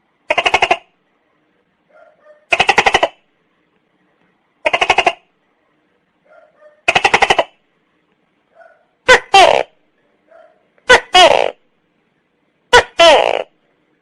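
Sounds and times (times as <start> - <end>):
gecko calling: 0.3 - 0.9, 4.6 - 5.3.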